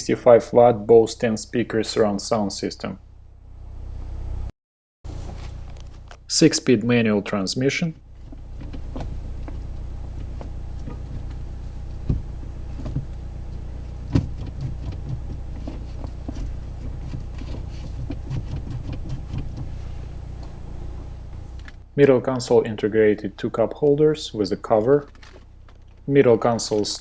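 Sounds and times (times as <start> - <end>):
car engine idling: 5.1 - 22.0, 22.8 - 27.0.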